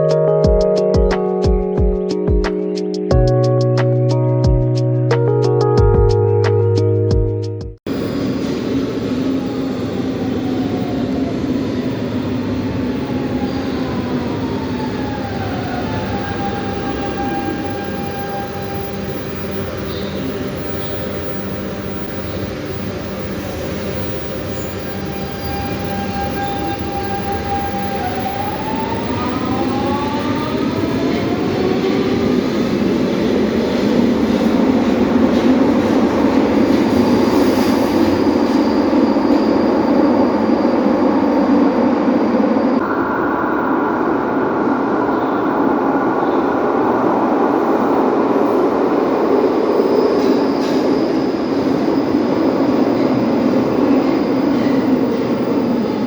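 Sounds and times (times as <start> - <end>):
train wheels rumbling: 7.2 - 56.0
electric train motor whine: 7.9 - 47.6.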